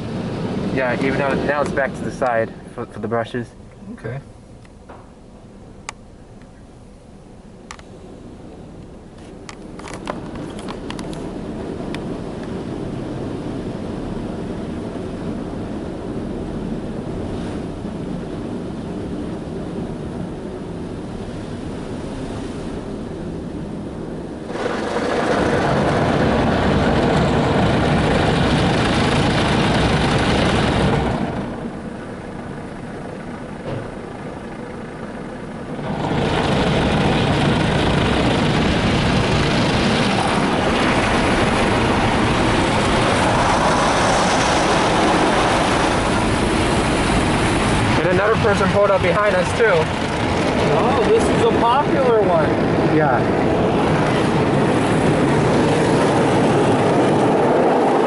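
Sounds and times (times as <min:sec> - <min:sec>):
car wash water and brushes: 0:24.2 - 0:32.1, 0:35.7 - 0:58.0.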